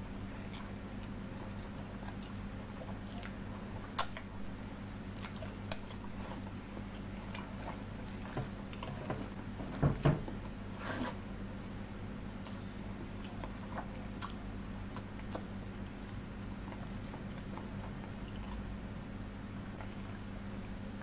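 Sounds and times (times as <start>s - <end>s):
steady low hum: 0.0s - 21.0s
chewing and wet mouth sounds: 0.3s - 9.0s, 12.4s - 18.8s.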